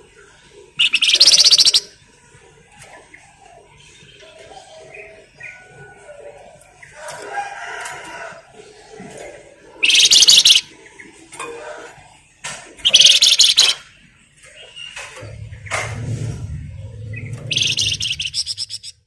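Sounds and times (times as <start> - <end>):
soft bird calls: 0.0 - 7.4, 8.0 - 11.4, 12.7 - 19.0
bird rattling chatters: 0.8 - 1.9, 9.8 - 10.7, 12.8 - 13.8, 17.4 - 19.0.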